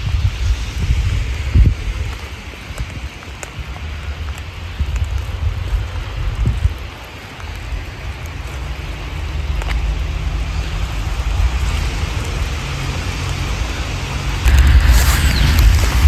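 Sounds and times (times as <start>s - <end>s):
steady rain falling: 0.0s - 16.0s
low rumble: 13.4s - 16.0s.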